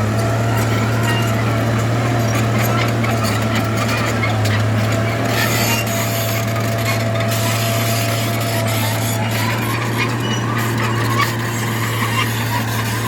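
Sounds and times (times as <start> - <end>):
bulldozer diesel engine running: 0.0 - 13.0
dirt scraping and rasping: 1.1 - 13.0.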